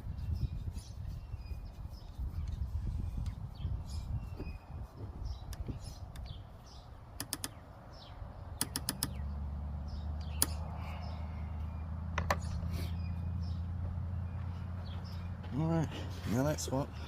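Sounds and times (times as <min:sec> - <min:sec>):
faint bird chirps: 0:00.0 - 0:15.4
sharp metal clicks: 0:07.1 - 0:07.7, 0:08.5 - 0:09.3, 0:10.2 - 0:10.7.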